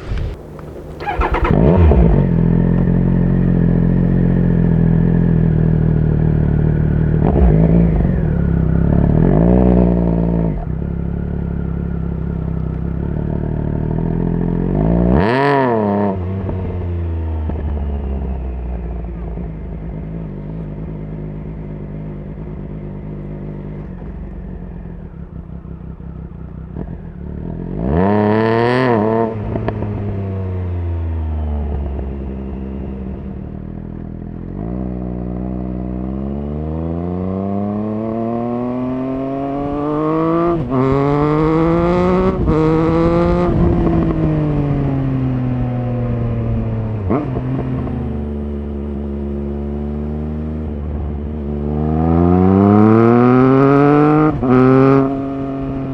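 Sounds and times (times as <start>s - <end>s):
gear changes: 0.0s - 2.9s
motorcycle engine revving: 0.0s - 18.3s, 34.4s - 55.9s.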